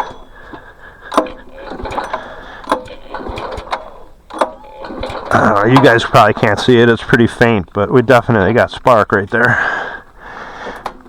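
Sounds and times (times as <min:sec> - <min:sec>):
recoil starter pull click: 0:00.0 - 0:07.9, 0:10.1 - 0:11.0
engine whirring without firing: 0:00.0 - 0:11.0.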